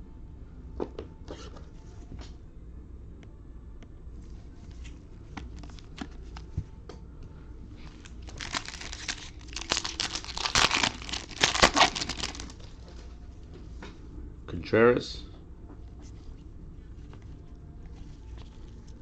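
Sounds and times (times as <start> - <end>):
plastic wrapper crinkling and ripping: 5.4 - 6.5, 7.8 - 12.8.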